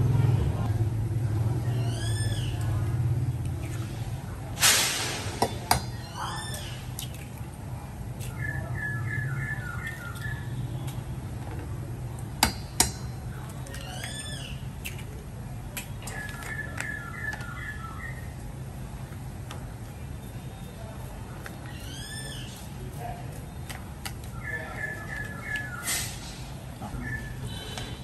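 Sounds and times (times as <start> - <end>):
birds calling: 1.6 - 3.7, 5.4 - 7.3, 8.2 - 11.3, 12.5 - 15.1, 15.8 - 18.4, 21.4 - 28.0.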